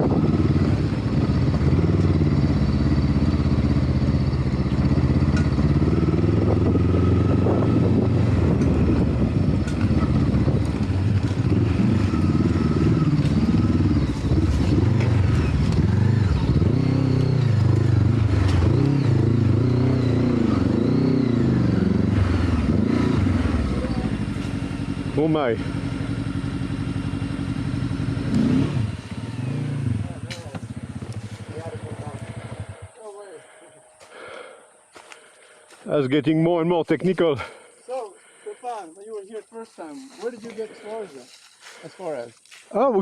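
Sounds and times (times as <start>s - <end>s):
motorcycle engine revving: 0.0s - 34.6s, 40.2s - 42.2s.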